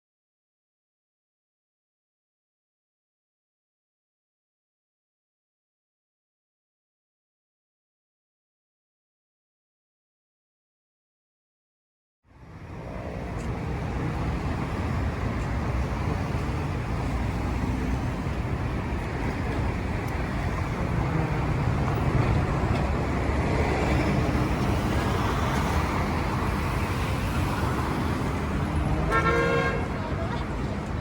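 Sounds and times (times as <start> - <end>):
city traffic rumble: 12.3 - 31.0.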